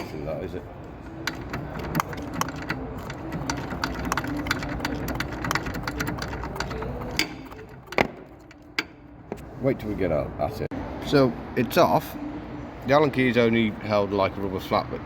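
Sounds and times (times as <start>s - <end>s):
sharp metallic knocks: 1.2s - 9.1s.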